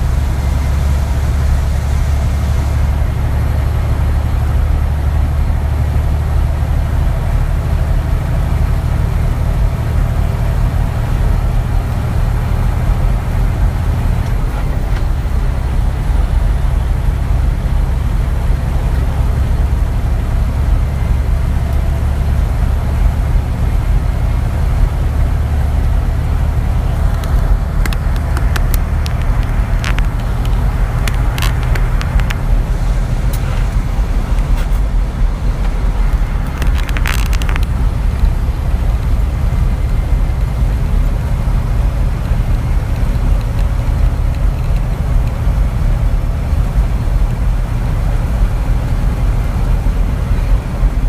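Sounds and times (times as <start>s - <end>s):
truck engine and road rumble: 0.0s - 51.0s
sharp clicks or rattles: 26.9s - 32.6s, 35.6s - 38.4s.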